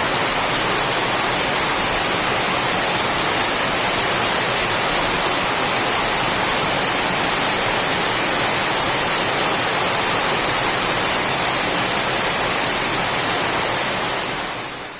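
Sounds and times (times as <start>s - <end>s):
heavy rain on palm fronds: 0.0s - 14.9s.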